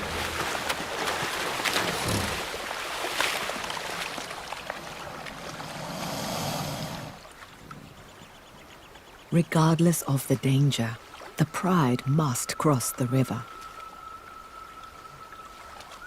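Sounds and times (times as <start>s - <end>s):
water splashing and churning: 0.0s - 7.8s, 9.5s - 12.6s.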